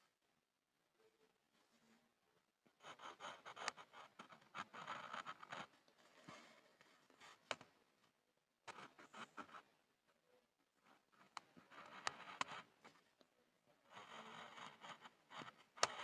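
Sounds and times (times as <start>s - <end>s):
pencil scribbling on board: 2.8s - 5.7s, 11.6s - 12.8s, 13.9s - 16.0s.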